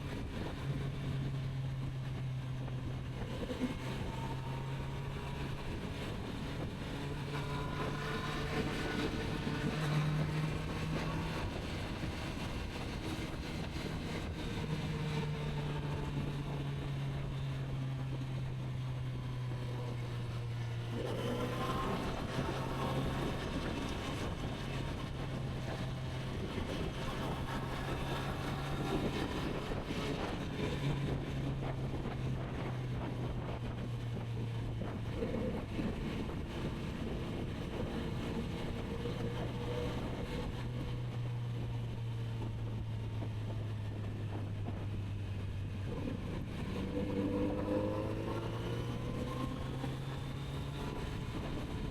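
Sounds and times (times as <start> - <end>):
motorcycle engine running: 0.0 - 51.9
wind noise on microphone: 0.0 - 51.9.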